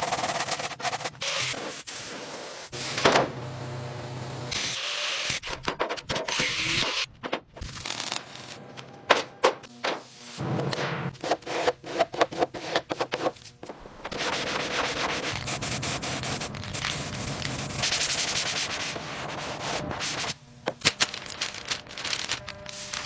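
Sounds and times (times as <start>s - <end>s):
sandpaper rubbing: 0.0s - 2.7s, 14.0s - 20.4s, 21.1s - 23.0s.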